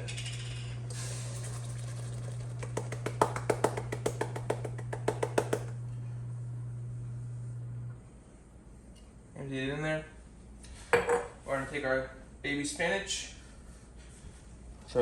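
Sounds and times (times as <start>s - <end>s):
steady low hum: 0.0s - 11.4s
sharp knocks and taps on container: 2.6s - 5.7s.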